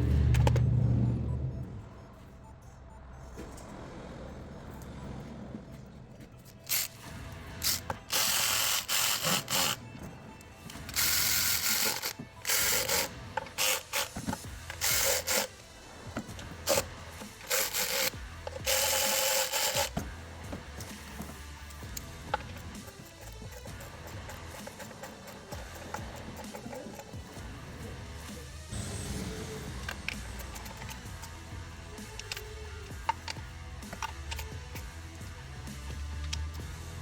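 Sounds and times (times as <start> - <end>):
hand tool ratcheting and rubbing: 6.4 - 15.6, 16.2 - 20.1, 20.7 - 28.4, 29.8 - 34.8.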